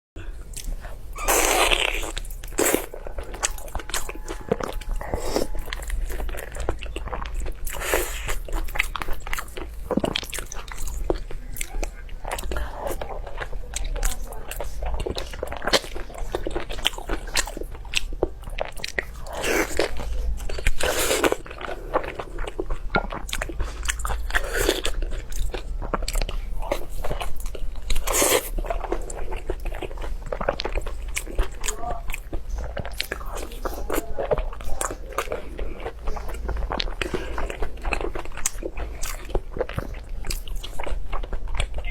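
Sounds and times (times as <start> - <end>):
person chewing crunchy food: 0.2 - 41.9.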